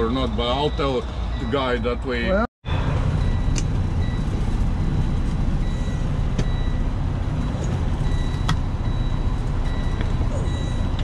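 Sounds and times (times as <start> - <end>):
high beeps: 5.6 - 11.0.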